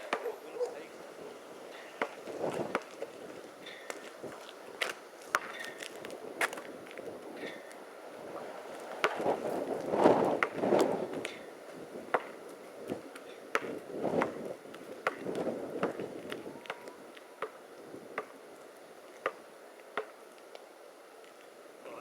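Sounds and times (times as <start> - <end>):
rough gusty noise: 0.0 - 13.1.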